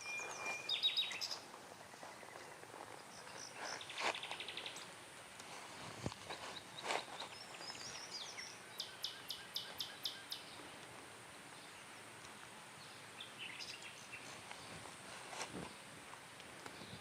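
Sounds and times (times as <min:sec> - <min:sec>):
sharp high bird calls: 0:00.0 - 0:04.8, 0:06.3 - 0:10.6
birds chirping: 0:00.0 - 0:16.0, 0:16.6 - 0:17.0
steady outdoor hiss: 0:00.0 - 0:17.0.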